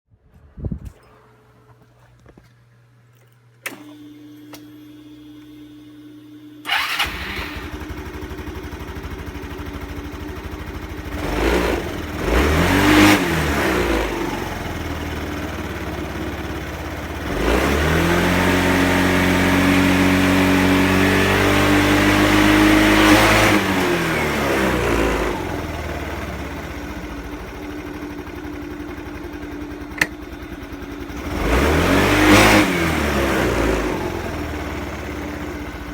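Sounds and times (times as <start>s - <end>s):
scooter engine idling and revving: 6.6s - 35.9s
scooter switch click: 29.8s - 30.4s.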